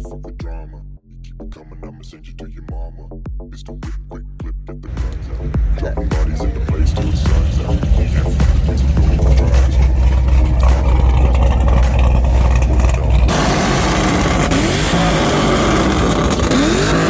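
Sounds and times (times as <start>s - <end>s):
bass-heavy hip-hop music: 0.0s - 17.0s
sports car engines revving: 4.9s - 17.0s.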